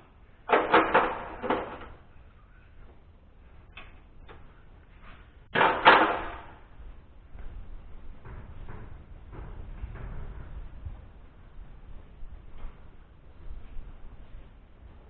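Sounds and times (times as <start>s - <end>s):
knocks and clatter: 0.4s - 2.1s, 3.8s - 13.7s.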